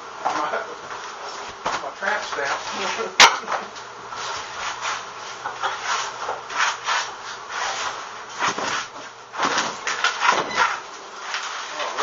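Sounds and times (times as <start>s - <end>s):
scraping and rubbing on wood: 4.2s - 12.0s.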